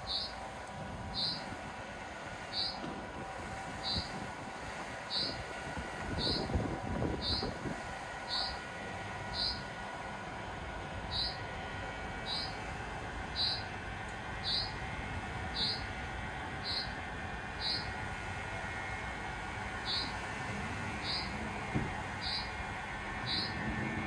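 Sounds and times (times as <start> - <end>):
steady low hum: 0.0 - 24.0
small bird chirping: 0.1 - 0.3, 1.2 - 1.4, 9.4 - 9.6, 11.1 - 11.4.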